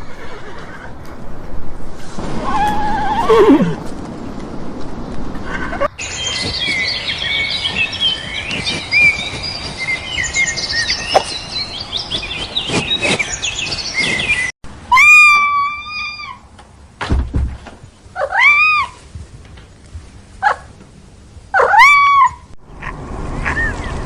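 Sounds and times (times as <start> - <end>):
small birds chirping: 5.9 - 14.6
low thud: 17.0 - 17.8.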